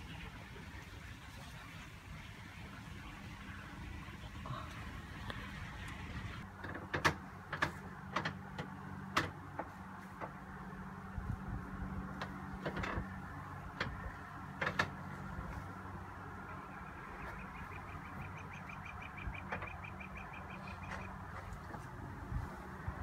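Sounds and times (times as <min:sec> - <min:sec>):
low steady hum: 0:00.0 - 0:23.0
songbird trilling: 0:16.5 - 0:21.2.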